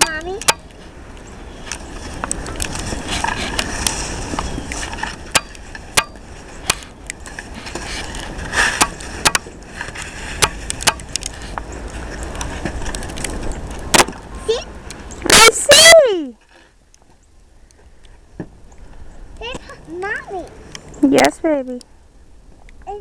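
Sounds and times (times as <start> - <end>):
snow shovel scraping pavement: 7.4 - 10.7.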